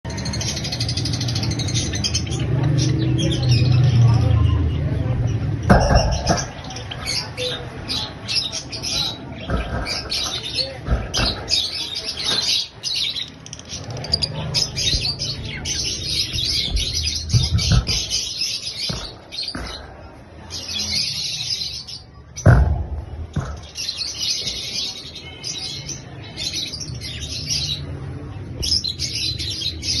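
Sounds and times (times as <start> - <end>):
parrots chirping and chattering: 0.0 - 30.0
dull thumps: 9.4 - 11.7, 16.3 - 20.0, 22.4 - 23.9.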